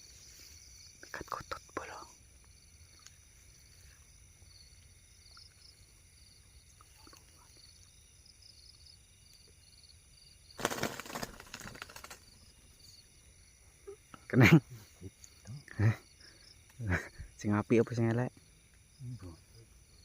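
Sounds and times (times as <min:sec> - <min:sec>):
night insects chirping: 0:00.0 - 0:20.0
wing flapping: 0:10.5 - 0:12.5
leaf rustling: 0:10.6 - 0:12.2.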